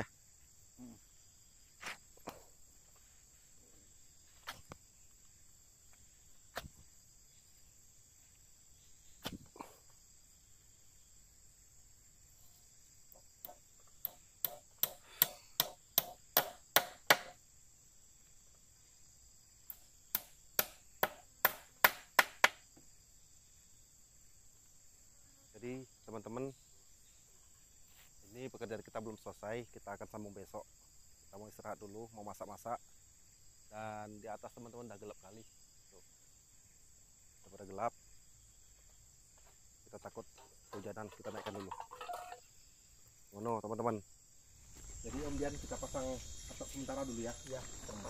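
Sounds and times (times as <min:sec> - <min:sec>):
insects buzzing: 0:00.0 - 0:48.0
hand tool striking wood: 0:13.4 - 0:17.4, 0:19.7 - 0:22.6, 0:40.4 - 0:42.4.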